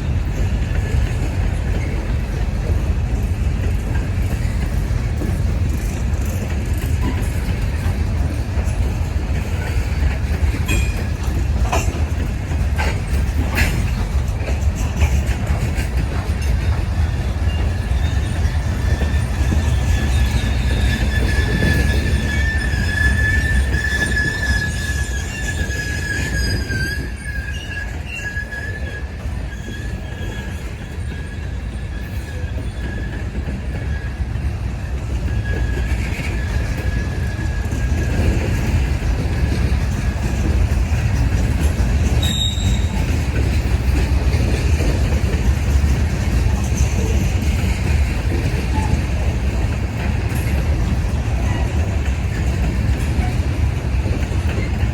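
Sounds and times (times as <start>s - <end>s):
freight train rumbling past: 0.0s - 54.9s
wheel squealing high tone: 17.2s - 34.3s, 42.1s - 43.2s.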